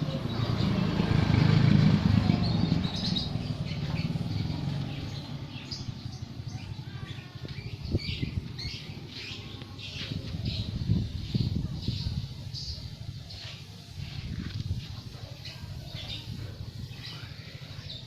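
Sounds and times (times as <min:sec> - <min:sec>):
low motor rumble: 0:00.0 - 0:13.1
small birds chirping: 0:00.0 - 0:18.0.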